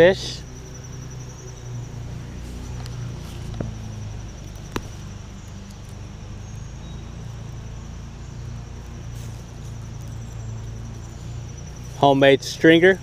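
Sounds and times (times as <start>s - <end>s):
insects trilling: 0.0s - 13.0s
low steady rumble: 0.0s - 13.0s
sharp clicks: 4.4s - 6.0s.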